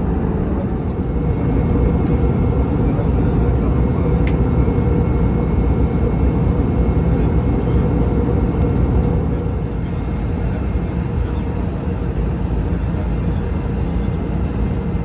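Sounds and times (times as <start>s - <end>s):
aircraft cabin rumble: 0.0s - 15.0s
faint high whine: 0.0s - 15.0s
click: 4.2s - 4.4s.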